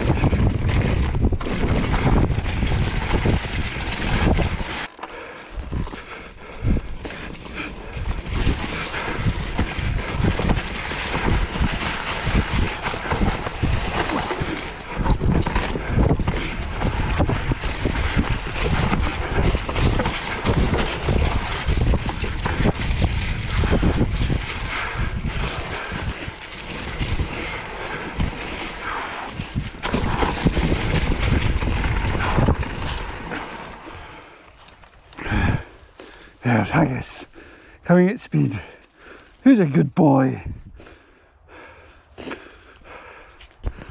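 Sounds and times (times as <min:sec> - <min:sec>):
wind buffeting microphone: 0:00.0 - 0:04.8, 0:05.5 - 0:34.4, 0:35.2 - 0:37.6, 0:40.4 - 0:41.9
bike knocks and rattles: 0:00.0 - 0:06.0, 0:06.6 - 0:33.5
bike tyres rolling on dirt: 0:00.0 - 0:39.5, 0:40.3 - 0:43.9.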